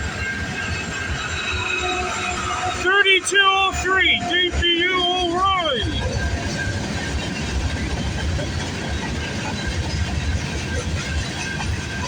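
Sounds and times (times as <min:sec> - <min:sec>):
high wheel squeal: 0:00.0 - 0:03.2
train wheels rumbling on rail: 0:00.0 - 0:12.0.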